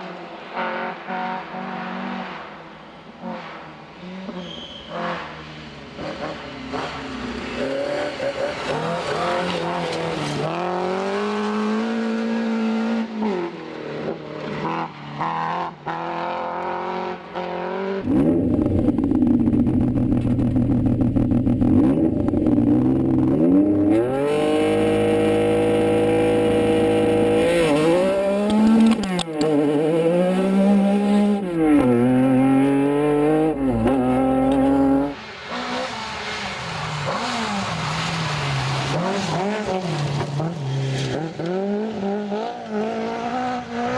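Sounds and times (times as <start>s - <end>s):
rally car engines revving: 0.2s - 43.9s
high whine: 18.0s - 24.1s.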